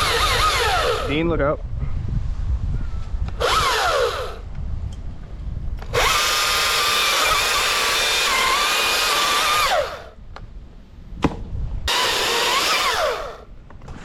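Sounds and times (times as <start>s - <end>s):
battery chainsaw motor whine: 0.0s - 1.3s, 3.4s - 4.5s, 5.8s - 10.2s, 11.9s - 13.5s.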